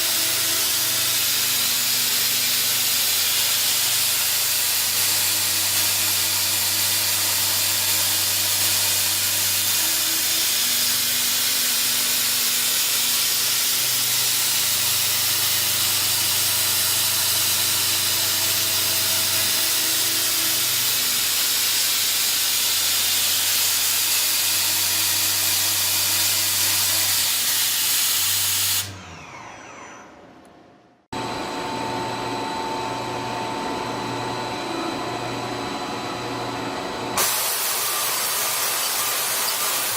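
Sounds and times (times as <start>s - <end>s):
machine high whine: 0.0s - 27.3s
cutting machine hissing: 0.0s - 30.2s, 31.2s - 39.9s.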